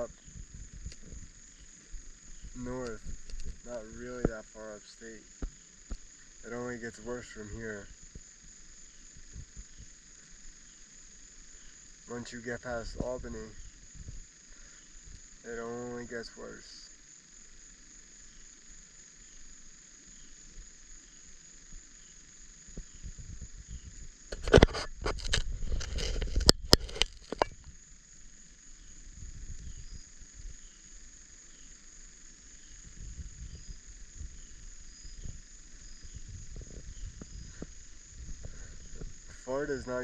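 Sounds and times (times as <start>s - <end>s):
crickets and insects chirping: 0.0s - 40.0s
low rumbling: 32.7s - 39.4s.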